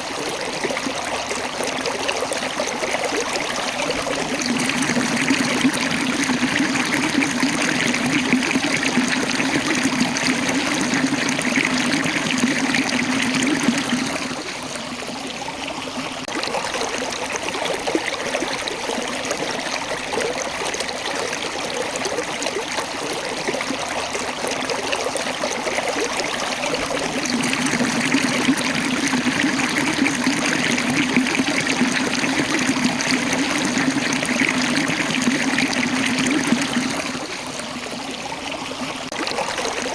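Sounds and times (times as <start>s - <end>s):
water rushing over rocks: 3.2s - 14.6s, 26.0s - 37.9s.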